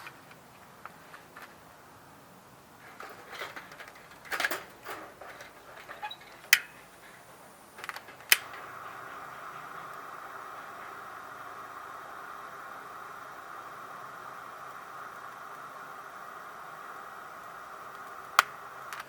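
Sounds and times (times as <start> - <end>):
steady hiss: 0.0 - 19.0
sharp clicks: 7.8 - 19.0.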